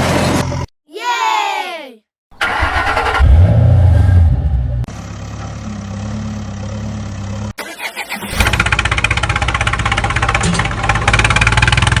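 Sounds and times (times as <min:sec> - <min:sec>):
engine running and sputtering: 0:02.4 - 0:07.6, 0:08.2 - 0:12.0.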